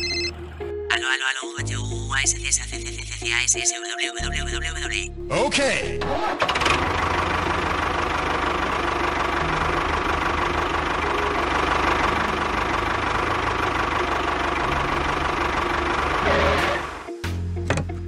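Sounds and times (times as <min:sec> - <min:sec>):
tractor engine chugging: 0:06.4 - 0:17.1.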